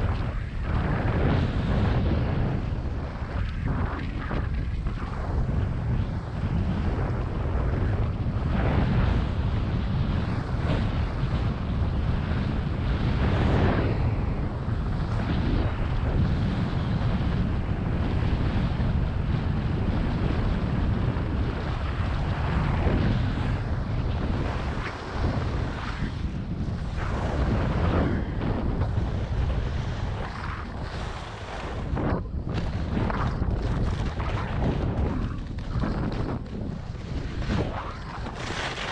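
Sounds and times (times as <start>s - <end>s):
wind buffeting microphone: 0.0s - 38.9s
skis scraping across snow: 29.0s - 38.9s.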